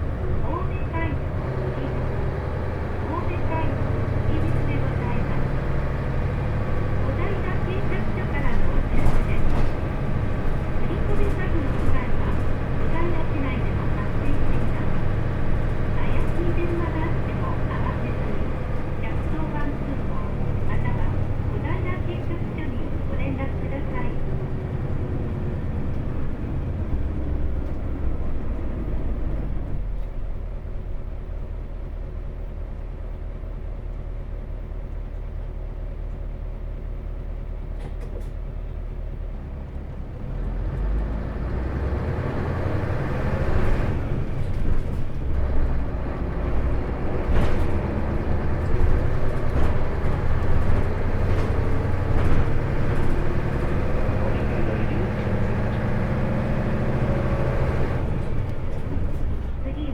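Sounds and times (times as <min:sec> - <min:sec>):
bus diesel engine: 0:00.0 - 0:59.9
knocks and rattles from bus body: 0:03.7 - 0:30.2, 0:37.4 - 0:39.5, 0:42.2 - 0:59.8.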